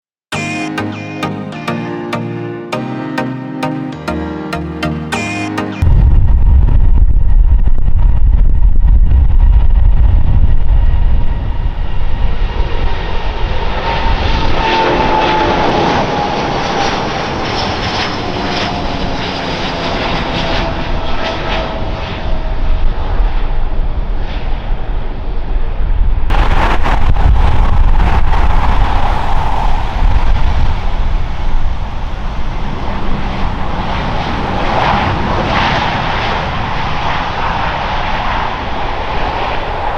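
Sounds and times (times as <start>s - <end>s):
airliner engines passing: 8.9s - 39.9s.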